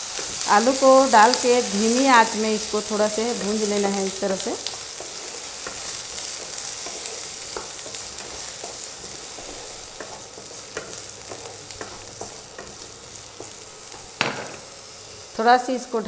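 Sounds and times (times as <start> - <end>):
potatoes sizzling in hot oil: 0.0 - 16.0
spatula tapping and scraping pan: 4.9 - 14.7.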